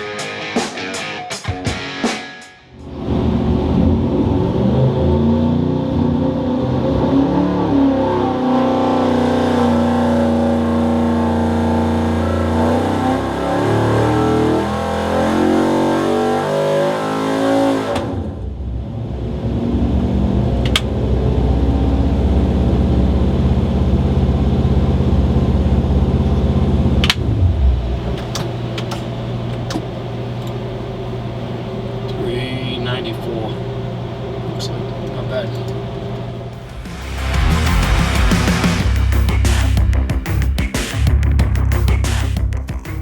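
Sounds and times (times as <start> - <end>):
engine running under load: 17.9 - 40.1.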